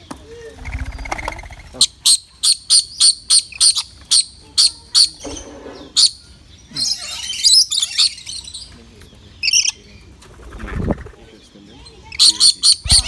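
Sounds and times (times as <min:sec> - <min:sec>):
bird chattering: 0:00.6 - 0:05.3, 0:09.4 - 0:11.4, 0:12.0 - 0:13.0
bird calling: 0:12.1 - 0:13.0.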